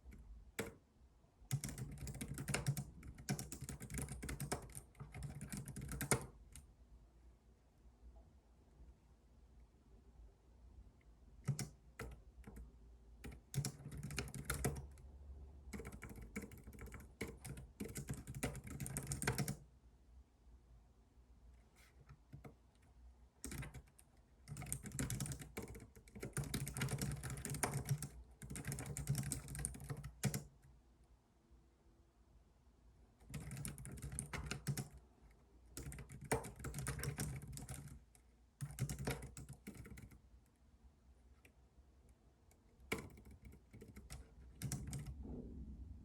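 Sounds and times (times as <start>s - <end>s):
computer keyboard typing: 0.1s - 0.8s, 1.5s - 6.6s, 11.4s - 15.0s, 15.7s - 19.6s, 22.0s - 22.6s, 23.4s - 30.6s, 33.2s - 40.2s, 42.5s - 45.2s
steady low rumble: 45.1s - 46.0s.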